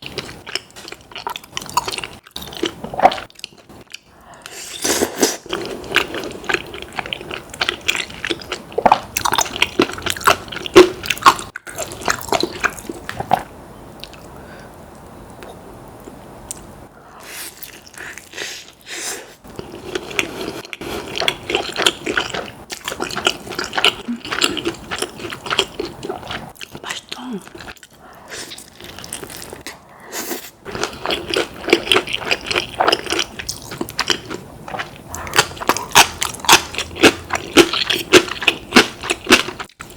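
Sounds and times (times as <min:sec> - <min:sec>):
chewing and biting food: 0:05.5 - 0:13.4, 0:19.5 - 0:28.0, 0:30.6 - 0:39.9.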